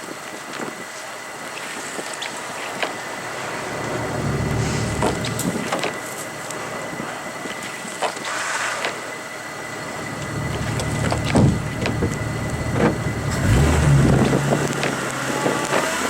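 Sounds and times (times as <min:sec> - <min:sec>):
vehicle engine running: 0:03.2 - 0:07.4, 0:09.6 - 0:16.0
sharp knocks: 0:11.0 - 0:12.2.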